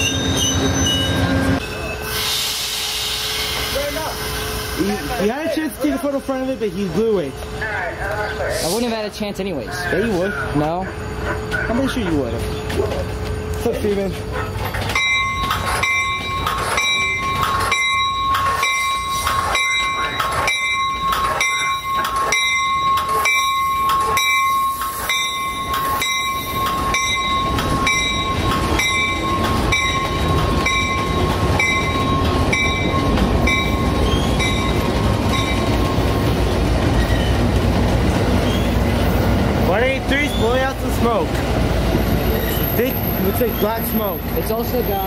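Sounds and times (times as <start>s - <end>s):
locomotive engine rumble: 3.6s - 45.0s
bell clanging: 11.8s - 36.1s.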